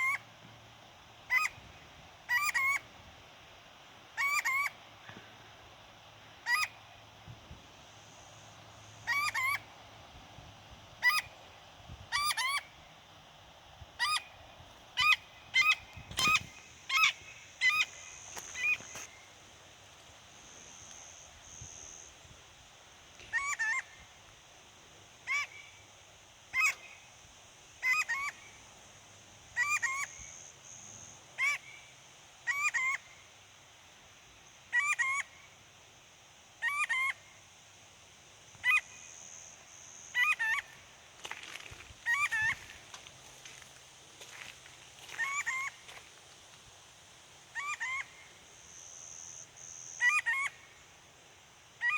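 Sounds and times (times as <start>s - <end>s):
bird two-part calls: 15.0s - 19.2s, 45.0s - 46.0s.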